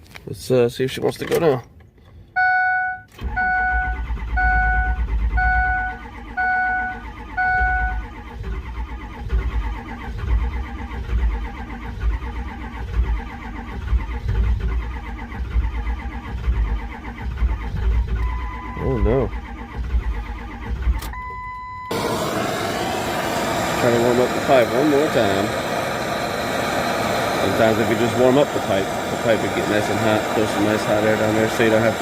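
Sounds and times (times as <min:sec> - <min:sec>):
dashboard warning chime beeping: 0:02.4 - 0:08.1, 0:18.2 - 0:19.6, 0:21.0 - 0:22.0
starter cranking diesel engine: 0:03.1 - 0:32.0.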